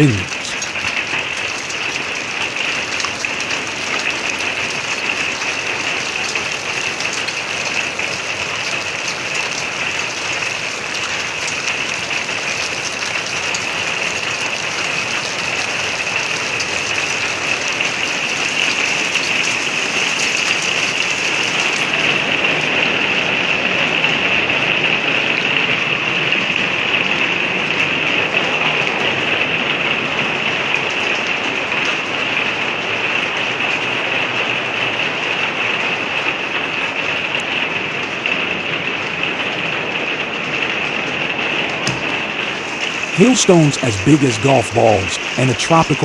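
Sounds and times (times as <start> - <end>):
heavy rain pouring: 41.9 - 46.0.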